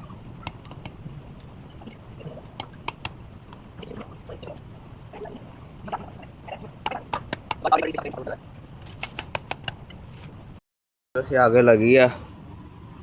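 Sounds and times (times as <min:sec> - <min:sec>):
wood snapping and crackling: 0:00.0 - 0:04.7, 0:06.8 - 0:10.4.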